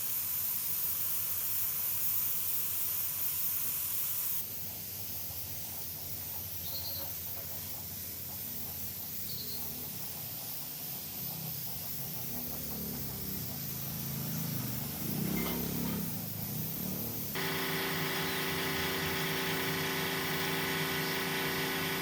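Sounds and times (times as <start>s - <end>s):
spray hissing: 9.8s - 22.0s.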